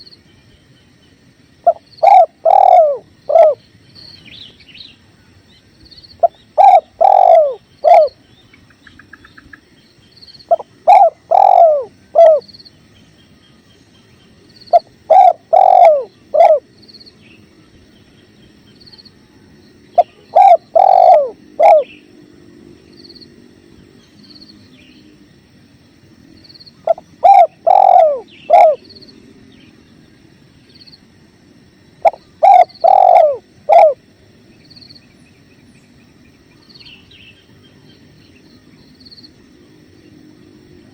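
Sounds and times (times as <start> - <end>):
dove cooing: 1.6 - 3.6, 6.2 - 8.2, 10.5 - 12.5, 14.7 - 16.7, 20.0 - 22.0, 26.8 - 28.9, 32.0 - 34.0.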